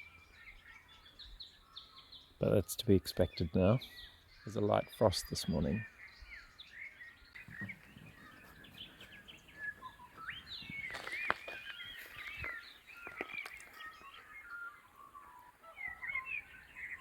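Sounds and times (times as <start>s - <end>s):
birds chirping and whistling: 0.0s - 17.0s.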